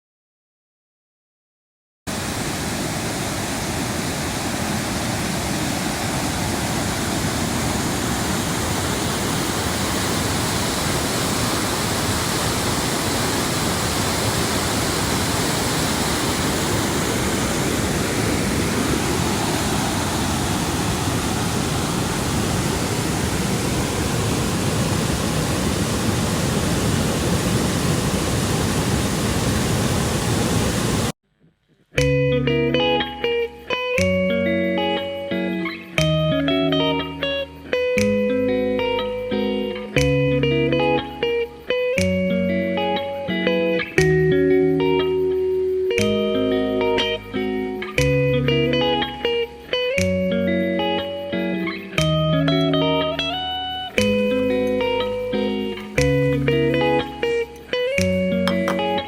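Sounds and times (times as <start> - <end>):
waterfall rushing: 2.1 - 31.1.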